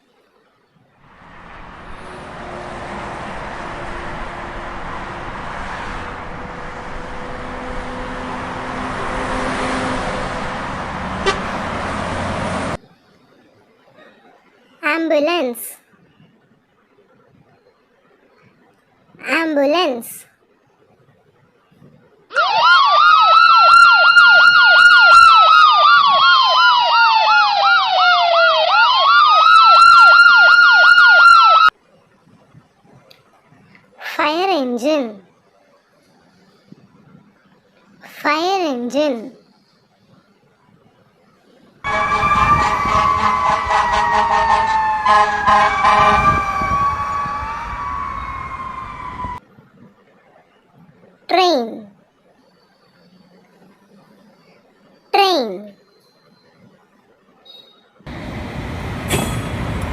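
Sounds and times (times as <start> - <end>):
ambulance siren: 1.1 - 12.8, 22.3 - 31.8, 41.8 - 49.4
horn blasts: 1.3 - 12.5, 41.9 - 46.8.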